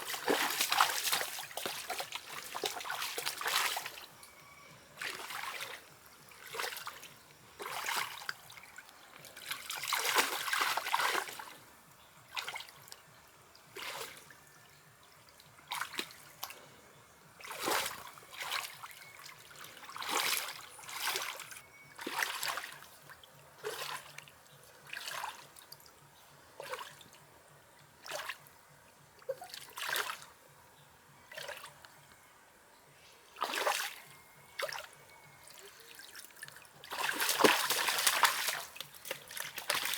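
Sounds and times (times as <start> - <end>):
water splashing: 0.0 - 4.1, 35.9 - 39.9.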